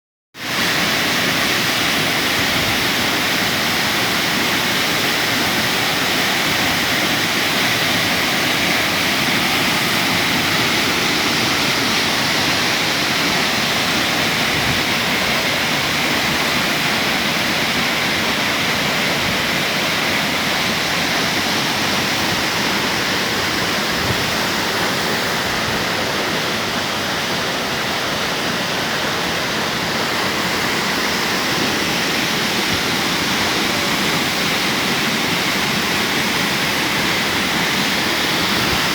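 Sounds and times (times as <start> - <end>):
waterfall rushing: 0.4 - 38.9.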